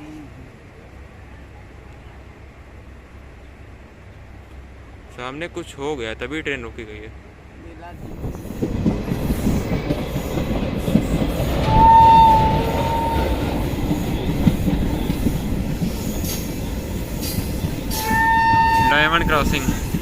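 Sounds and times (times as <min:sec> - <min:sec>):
train wheels rumbling and clattering: 0:00.4 - 0:20.0
steady high tone: 0:11.6 - 0:14.2.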